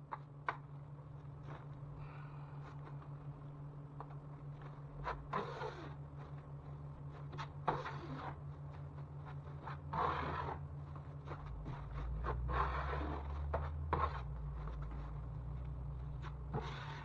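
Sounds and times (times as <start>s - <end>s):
steady low hum: 0.0s - 17.0s
hand tool scraping drywall: 5.0s - 6.0s, 7.2s - 8.4s, 9.3s - 14.3s, 16.2s - 17.0s.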